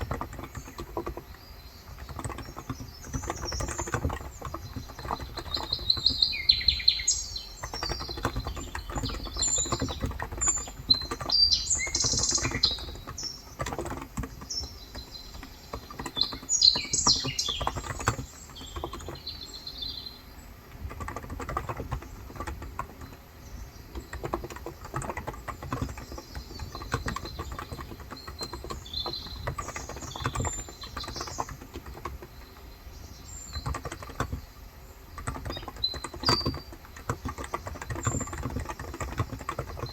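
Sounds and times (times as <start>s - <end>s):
birds chirping: 0.0s - 39.9s
keyboard keys clicking softly: 20.5s - 39.9s.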